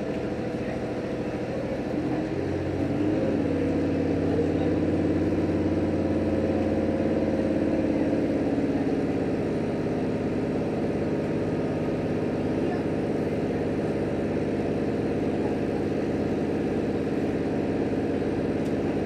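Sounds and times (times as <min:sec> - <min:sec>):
railcar diesel engine: 0:00.0 - 0:19.0.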